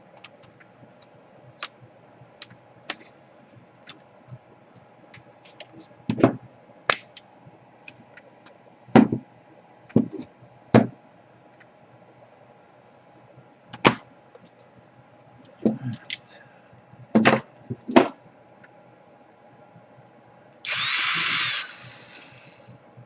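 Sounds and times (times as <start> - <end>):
electric screwdriver whirring: 20.7 - 22.6.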